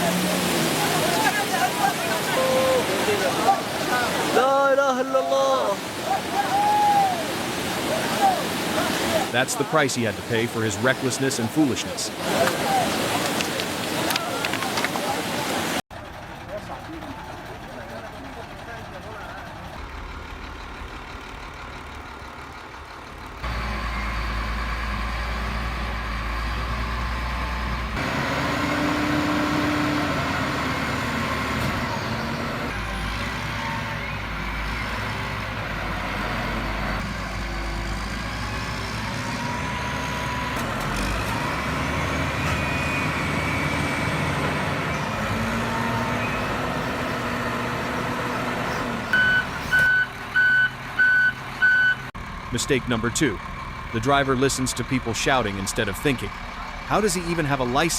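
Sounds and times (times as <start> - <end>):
truck engines humming: 0.0 - 57.9
reversing alarm beeping: 49.1 - 52.1.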